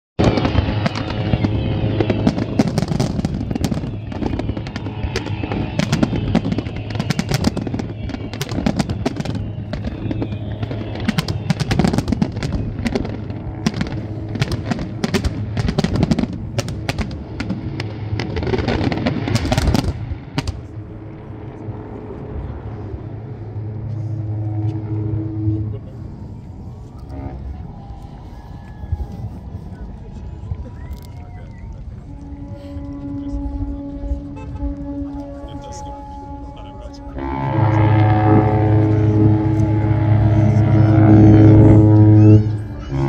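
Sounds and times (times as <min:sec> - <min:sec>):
fireworks bangs and crackling: 0:00.2 - 0:24.1
steady low tone: 0:00.2 - 0:43.0.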